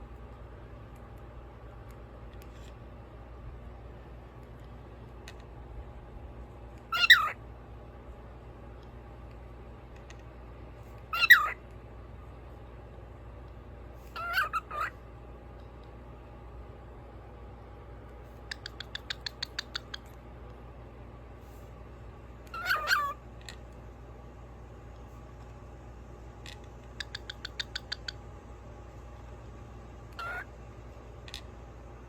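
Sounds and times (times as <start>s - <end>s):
cockatiel chirping: 6.9s - 7.4s, 11.1s - 11.6s, 14.1s - 14.9s, 18.4s - 20.1s, 22.5s - 23.2s, 27.0s - 28.2s, 30.2s - 30.5s
cockatiel squawk: 6.9s - 7.4s, 11.1s - 11.6s, 14.1s - 15.0s, 22.5s - 23.2s, 30.1s - 30.5s.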